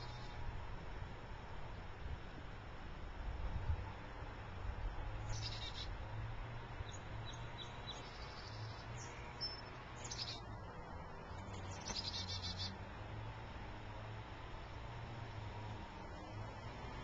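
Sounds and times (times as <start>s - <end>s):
small birds chirping: 0.0s - 0.4s, 5.1s - 12.8s.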